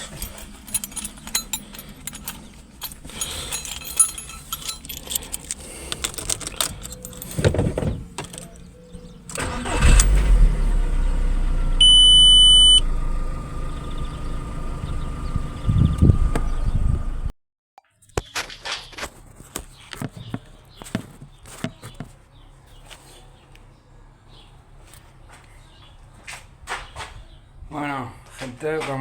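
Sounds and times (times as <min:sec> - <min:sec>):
handling clicks and rattles: 0:00.0 - 0:10.2
car engine starting and idling: 0:05.4 - 0:17.3
short electronic beep: 0:11.8 - 0:12.8.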